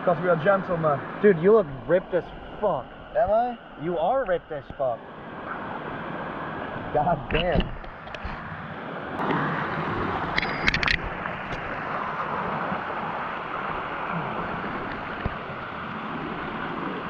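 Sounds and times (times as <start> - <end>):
waterfall rushing: 9.2 - 17.0.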